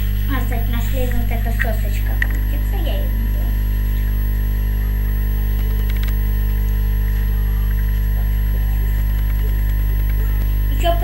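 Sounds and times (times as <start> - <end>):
electrical mains hum: 0.0 - 11.0
faint clicks: 0.9 - 2.7, 3.9 - 10.7.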